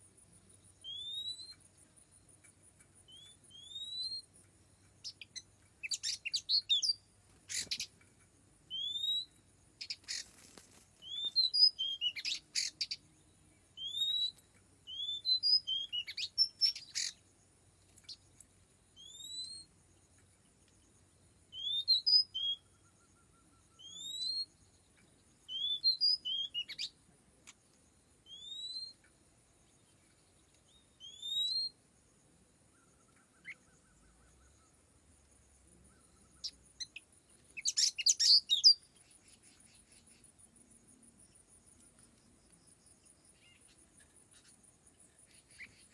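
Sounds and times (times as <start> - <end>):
bird whistling calls: 0.8 - 1.6, 3.1 - 4.3, 5.0 - 7.9, 8.7 - 10.4, 11.0 - 13.0, 13.8 - 17.2, 19.0 - 19.7, 21.5 - 22.8, 23.7 - 24.5, 25.5 - 26.9, 28.3 - 29.0, 31.0 - 31.8, 37.6 - 38.8.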